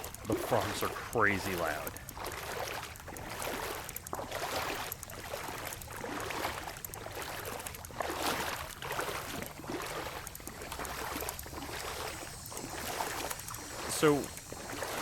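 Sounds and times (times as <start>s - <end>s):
legs wading through water: 0.0s - 15.0s.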